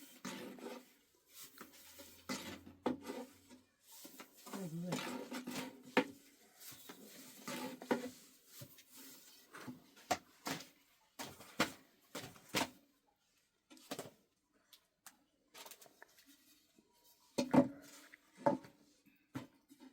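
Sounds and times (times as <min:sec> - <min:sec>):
knocks and clatters of objects: 0:01.4 - 0:12.8, 0:17.3 - 0:19.9.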